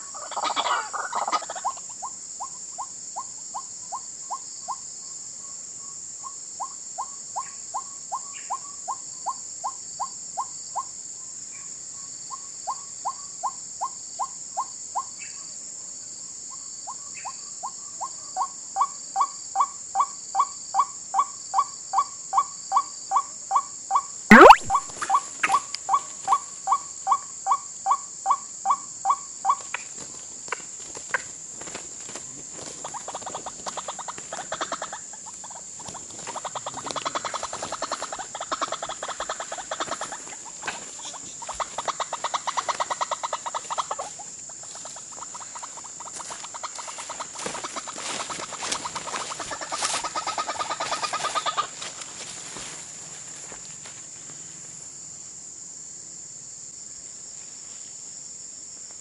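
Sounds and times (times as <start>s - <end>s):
waterhens croaking: 0.0s - 2.0s, 32.6s - 52.0s
high insect drone: 0.0s - 59.0s.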